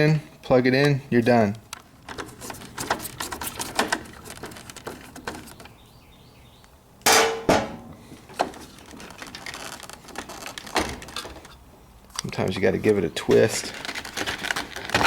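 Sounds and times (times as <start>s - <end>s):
loud metallic clang: 7.0s - 7.9s.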